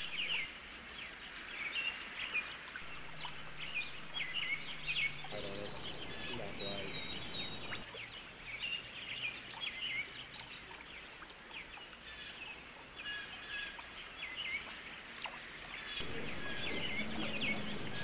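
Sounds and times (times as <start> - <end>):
birds chirping: 0.0 - 0.6, 2.8 - 10.1, 15.7 - 18.0.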